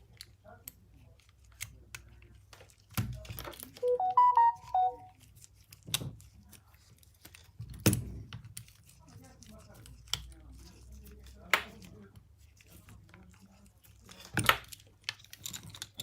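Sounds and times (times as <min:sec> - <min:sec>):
electronic beep jingle: 0:03.8 - 0:05.1.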